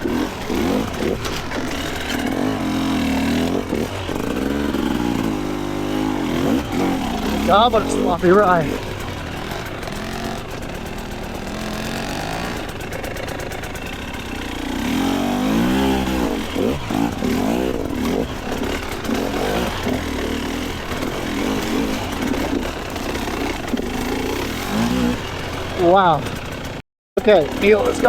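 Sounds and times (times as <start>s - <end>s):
two-stroke dirt bike engine revving: 0.0s - 28.0s.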